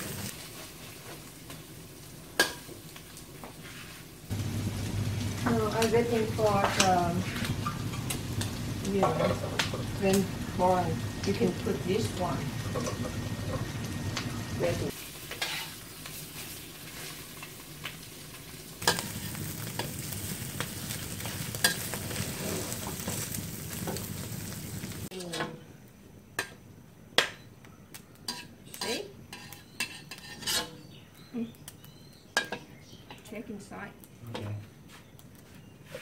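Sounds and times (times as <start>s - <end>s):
omelette sizzling in hot oil: 0.0s - 25.1s, 28.3s - 30.8s
metal spatula scraping wok: 14.9s - 17.2s, 18.8s - 24.0s, 28.3s - 30.9s.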